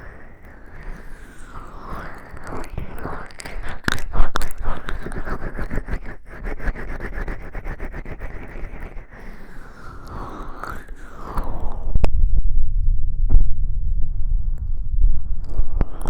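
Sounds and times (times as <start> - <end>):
wet rubbing on microphone: 1.8 - 9.1.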